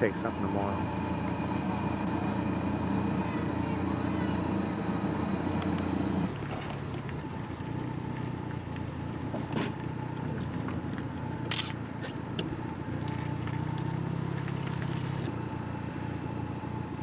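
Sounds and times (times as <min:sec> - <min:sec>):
vehicle engine humming: 0:00.0 - 0:17.0
short sharp clicks: 0:11.5 - 0:11.8.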